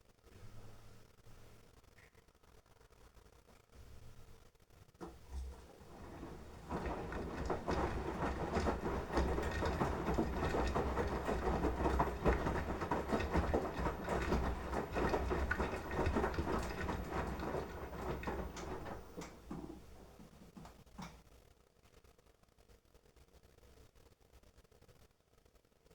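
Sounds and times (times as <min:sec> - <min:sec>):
washing machine motor hum: 0:05.0 - 0:21.1
laundry and water sloshing: 0:05.2 - 0:20.7.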